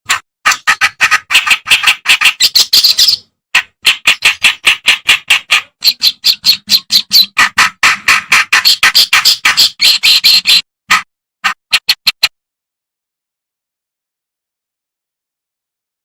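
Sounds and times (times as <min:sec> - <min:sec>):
warbler singing grating notes: 0:00.5 - 0:10.7.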